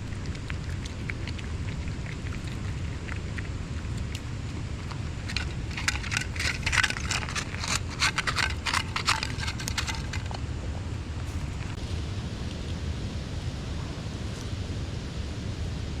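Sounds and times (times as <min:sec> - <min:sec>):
dog crunching dry food: 0:00.0 - 0:11.8
low rumble: 0:00.0 - 0:16.0
kibble clattering in bowl: 0:04.8 - 0:10.5.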